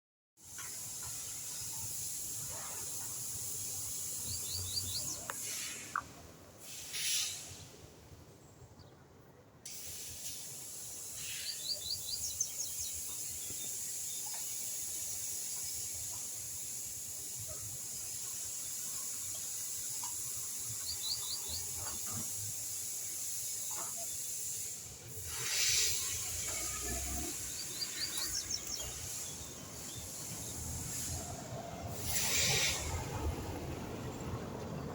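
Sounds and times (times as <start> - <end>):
steady high hiss: 0.4 - 8.5, 9.5 - 34.1
small bird chirping: 3.3 - 5.6, 11.1 - 16.9, 18.0 - 24.6, 25.4 - 31.1.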